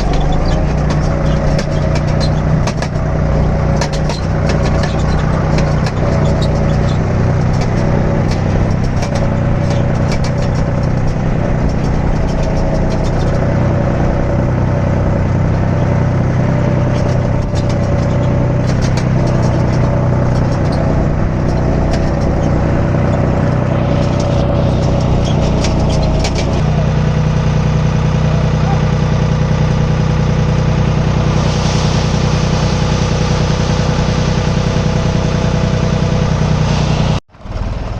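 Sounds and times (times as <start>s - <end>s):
sharp clanks and knocks: 0.0s - 14.8s, 15.4s - 26.7s
wavering whine: 0.0s - 37.2s
diesel engine running: 0.0s - 37.9s.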